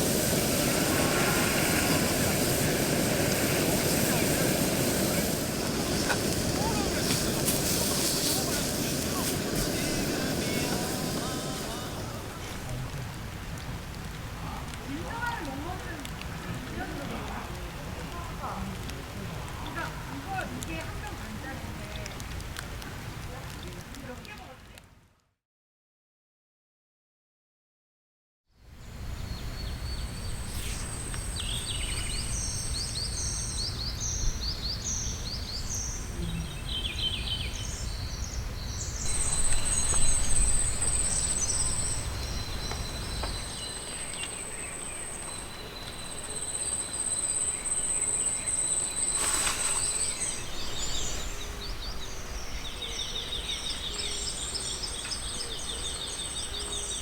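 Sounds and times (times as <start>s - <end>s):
insects trilling: 0.0s - 13.0s, 29.2s - 57.0s
birds chirping: 0.0s - 22.4s, 28.9s - 57.0s.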